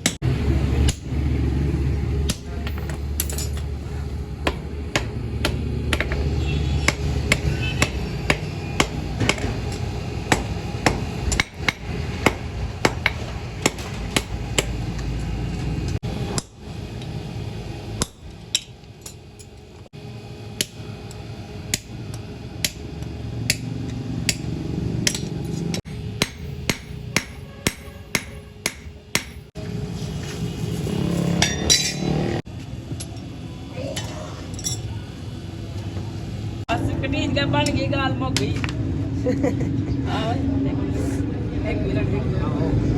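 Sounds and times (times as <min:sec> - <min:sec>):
hammer blows on hot steel: 0:21.7 - 0:29.5.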